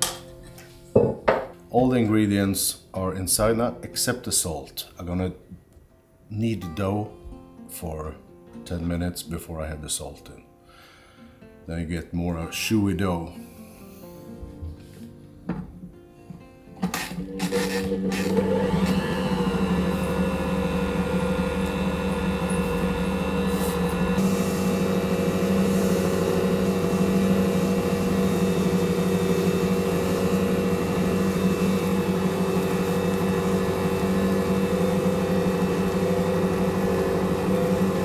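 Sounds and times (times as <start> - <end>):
stand mixer motor humming: 16.8 - 38.0.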